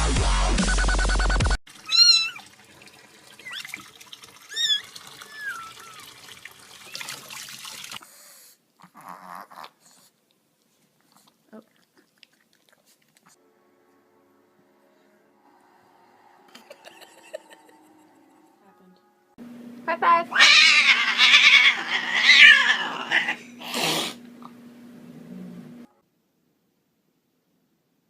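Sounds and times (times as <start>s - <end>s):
dubstep music: 0.0s - 1.6s
cat meowing: 1.8s - 2.4s, 4.5s - 6.1s, 20.3s - 23.4s.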